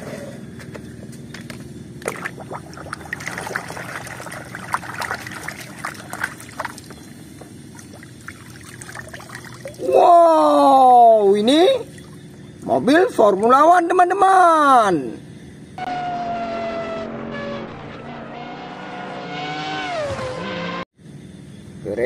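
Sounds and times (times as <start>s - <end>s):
water sloshing in a basin: 2.0s - 10.1s, 11.4s - 12.6s.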